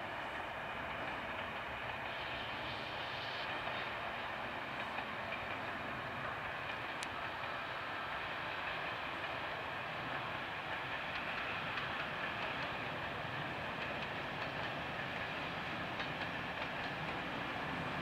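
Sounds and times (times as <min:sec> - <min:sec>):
distant train rolling: 0:00.0 - 0:18.0.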